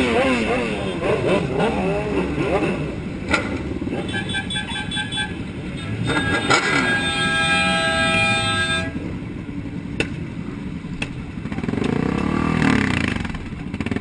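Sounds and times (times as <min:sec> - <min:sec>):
motorcycle engines revving: 0:00.0 - 0:14.0
vehicle horn: 0:03.9 - 0:09.0.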